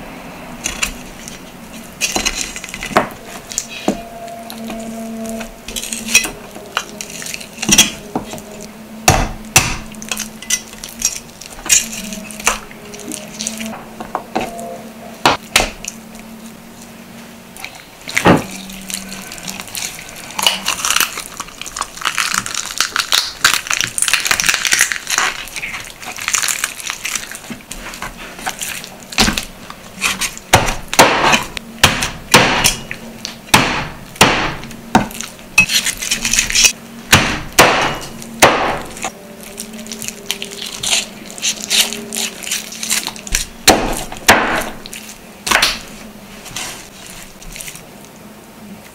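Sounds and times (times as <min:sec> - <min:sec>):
cleaver chopping on wooden board: 0:09.1 - 0:09.9, 0:30.5 - 0:32.8, 0:33.5 - 0:35.2, 0:37.1 - 0:38.9, 0:43.7 - 0:44.8
raw chicken tearing: 0:09.8 - 0:13.8, 0:17.6 - 0:31.7, 0:34.6 - 0:36.8, 0:38.1 - 0:48.1.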